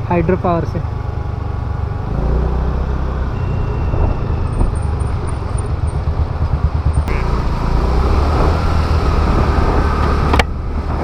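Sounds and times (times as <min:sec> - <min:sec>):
faint high tone: 0:03.4 - 0:04.7
wind rush on microphone: 0:03.8 - 0:05.0, 0:08.0 - 0:11.0.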